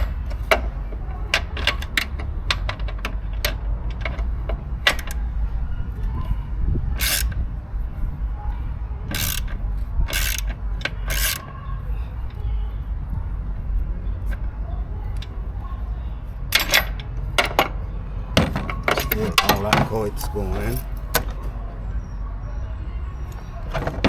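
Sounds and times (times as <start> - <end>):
ratchet wrench clicking: 7.0 - 7.4, 9.1 - 11.5.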